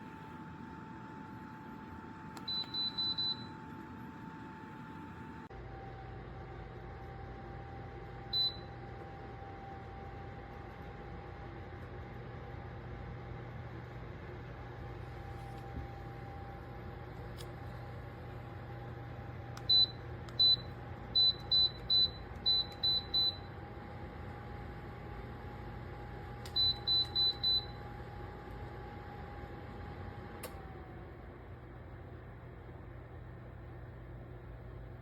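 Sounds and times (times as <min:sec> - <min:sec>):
click: 0:02.3 - 0:02.8, 0:26.4 - 0:27.4, 0:30.4 - 0:30.6.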